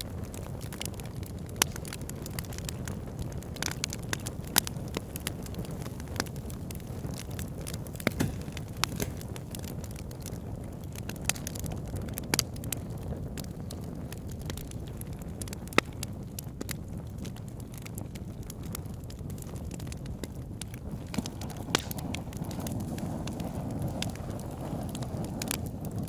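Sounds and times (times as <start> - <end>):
fire crackling and popping: 0.0 - 26.0
low rumble of flames: 0.0 - 26.0.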